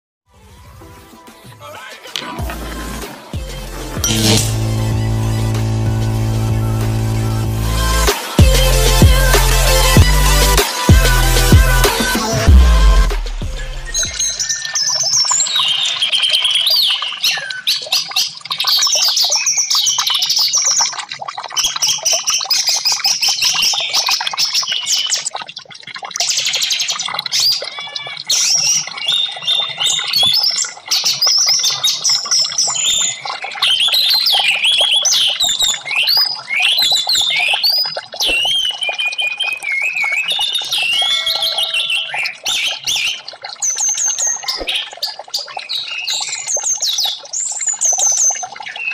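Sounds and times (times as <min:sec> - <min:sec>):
thrush singing whistled trills: 0:13.3 - 0:20.8, 0:28.4 - 0:48.9.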